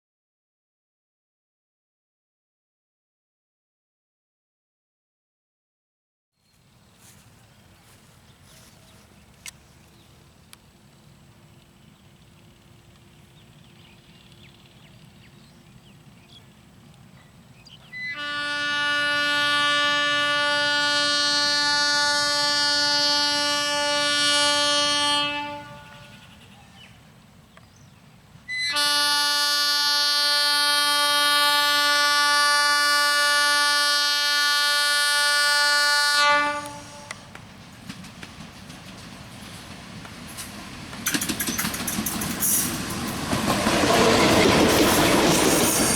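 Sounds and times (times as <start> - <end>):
locomotive horn blasts: 17.8 - 26.4, 28.5 - 37.4
train wheels clattering on rails: 36.7 - 45.9.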